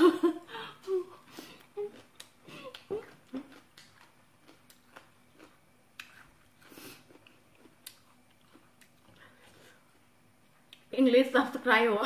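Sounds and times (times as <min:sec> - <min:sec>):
chewing with mouth closed: 0:01.5 - 0:09.6.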